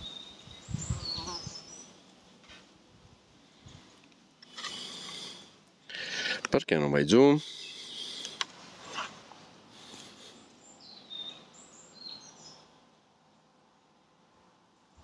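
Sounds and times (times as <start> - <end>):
high bird chirps: 0.0 - 1.9
faint outdoor background hiss: 0.0 - 15.0
soft rustle: 8.1 - 10.5.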